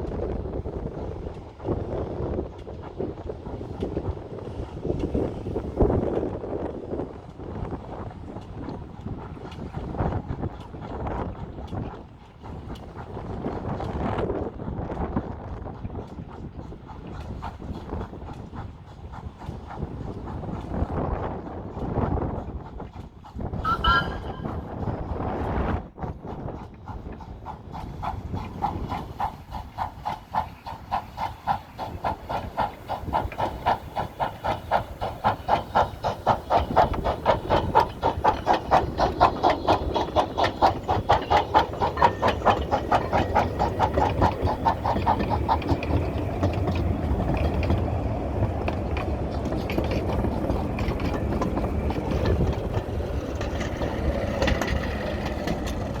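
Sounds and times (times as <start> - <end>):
steam locomotive exhaust beats: 0.0 - 56.0
train rumbling: 0.0 - 56.0
steam hiss: 27.5 - 47.2.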